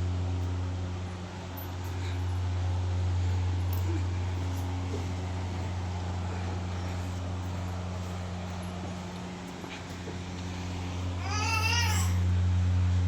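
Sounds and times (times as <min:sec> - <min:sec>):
low machine hum: 0:00.0 - 0:13.0
cat meow: 0:11.2 - 0:12.2.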